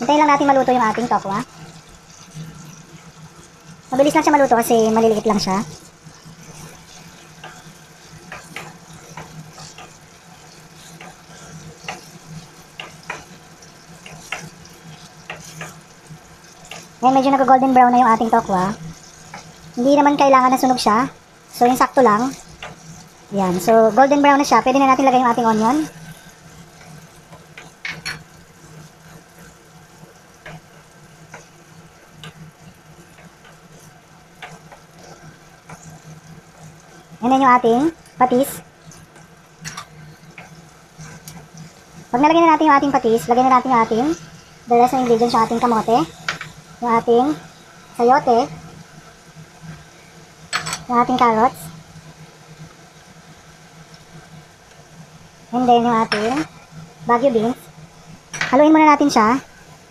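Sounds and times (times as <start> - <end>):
tofu sizzling in oil: 0.0 - 59.9
spatula clicking and scraping: 4.9 - 17.0, 18.3 - 19.8, 22.0 - 24.0, 25.0 - 37.0, 38.8 - 41.8.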